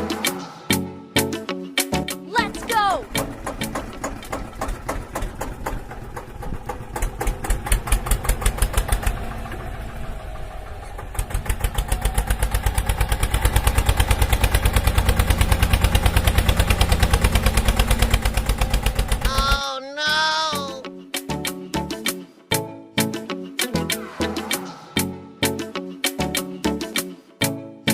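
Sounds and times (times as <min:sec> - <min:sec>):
small engine chugging: 0:02.5 - 0:19.6.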